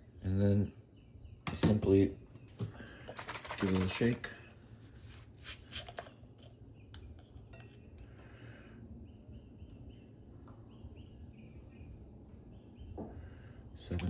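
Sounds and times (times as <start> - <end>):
plastic bottle shaken: 3.0 - 4.5.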